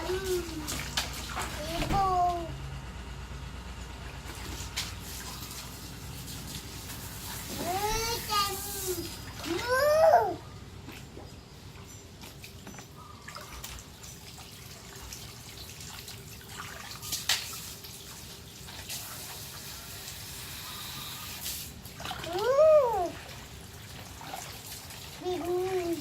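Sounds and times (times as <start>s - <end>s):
water running and trickling: 0.0s - 2.4s, 4.2s - 10.3s, 11.0s - 26.0s
water spray: 4.8s - 9.3s, 17.0s - 21.8s.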